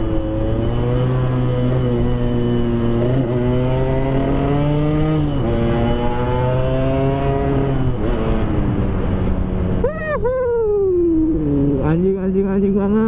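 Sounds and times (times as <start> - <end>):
motorcycle engine accelerating: 0.0 - 10.2.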